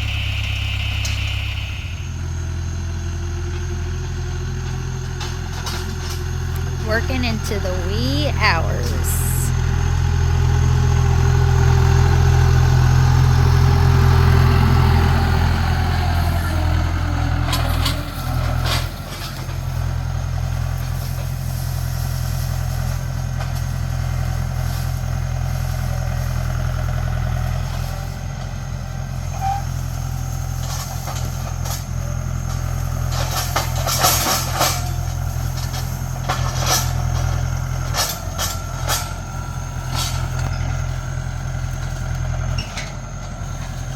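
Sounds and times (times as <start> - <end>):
tractor engine running: 0.0 - 43.9
clanks and rattles: 30.6 - 39.3.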